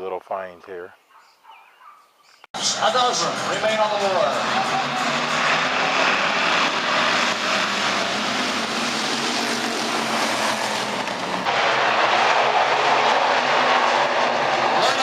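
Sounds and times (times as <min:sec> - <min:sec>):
race car engines roaring: 0:02.6 - 0:15.0.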